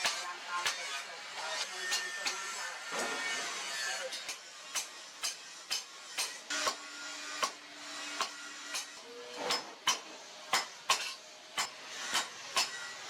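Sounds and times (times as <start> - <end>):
hammer striking metal on anvil: 0.0 - 0.9, 1.9 - 2.4, 4.2 - 6.8, 7.4 - 7.6, 8.2 - 12.9.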